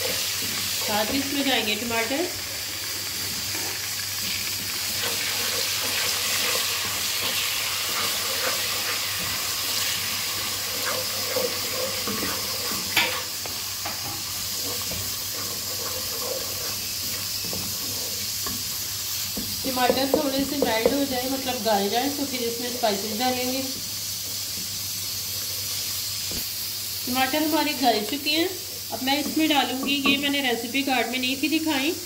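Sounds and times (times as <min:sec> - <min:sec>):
vegetables sizzling in hot oil: 0:00.0 - 0:32.0
wooden spatula stirring: 0:04.5 - 0:13.2, 0:13.8 - 0:21.1.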